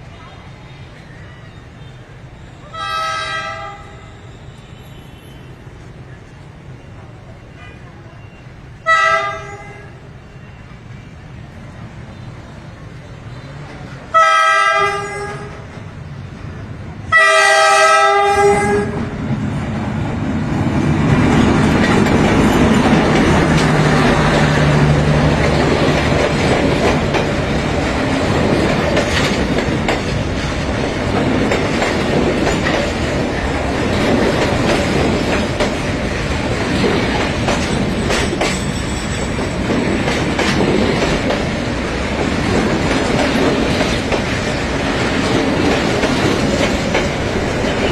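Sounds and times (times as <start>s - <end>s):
train running on rails: 0.0s - 47.9s
train horn: 2.7s - 5.5s, 8.8s - 10.0s, 14.1s - 15.7s, 17.1s - 19.1s.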